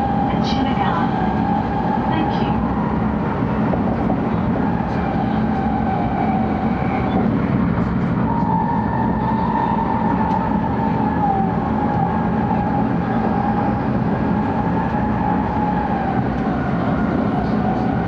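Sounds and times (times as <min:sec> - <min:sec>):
train wheels rumbling on rails: 0:00.0 - 0:18.0
train whine: 0:00.0 - 0:18.0.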